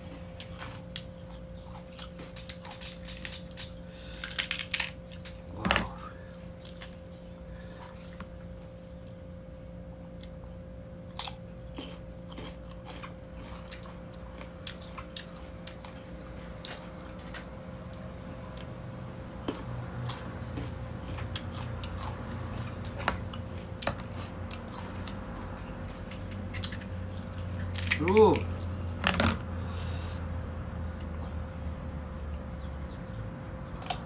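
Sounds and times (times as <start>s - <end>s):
person chewing crunchy fruit: 0.0s - 32.6s
faint steady hum: 0.0s - 34.0s.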